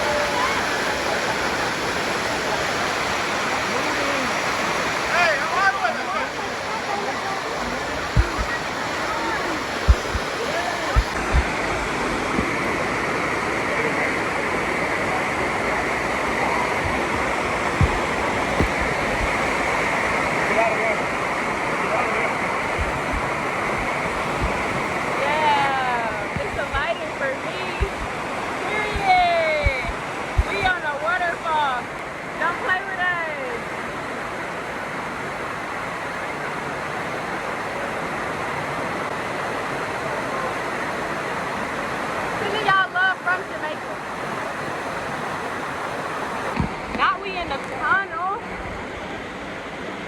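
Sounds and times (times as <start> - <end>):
waterfall rushing: 0.0 - 50.0
low thumps: 8.2 - 8.6, 9.8 - 11.6, 16.8 - 19.5, 22.7 - 25.0, 26.2 - 27.0, 27.7 - 30.7.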